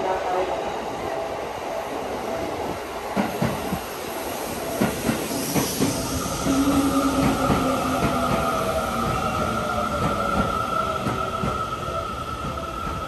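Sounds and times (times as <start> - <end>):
steady high tone: 5.3 - 13.0.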